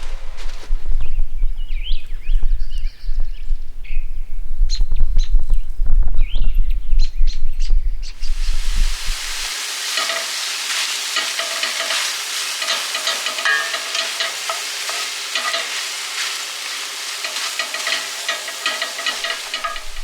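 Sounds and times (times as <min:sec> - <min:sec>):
birds chattering and chirping: 0:09.5 - 0:20.0.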